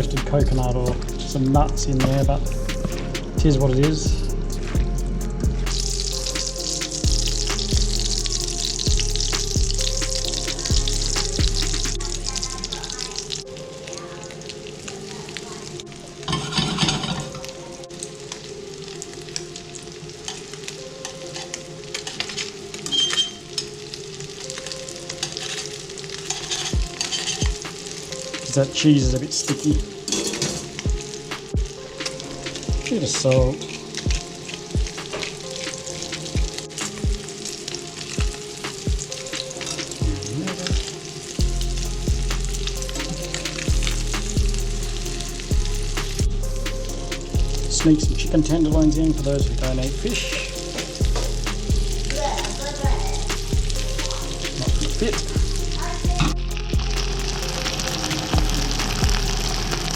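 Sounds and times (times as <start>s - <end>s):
deep bass note: 0.0s - 13.3s, 41.4s - 59.9s
background music with kick drum: 0.0s - 13.4s, 26.7s - 59.9s
fish frying in hot oil: 5.7s - 13.5s, 57.2s - 59.9s
fish sizzling as it fries: 5.7s - 47.7s, 49.6s - 59.9s.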